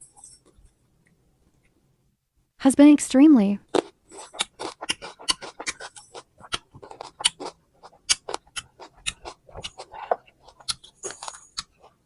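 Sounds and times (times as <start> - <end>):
chewing crunchy fruit: 3.7 - 12.0.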